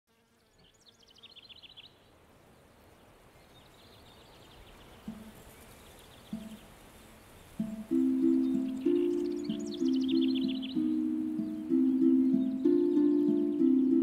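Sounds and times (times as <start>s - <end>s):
small bird chirping: 0.3s - 2.0s, 3.0s - 14.0s.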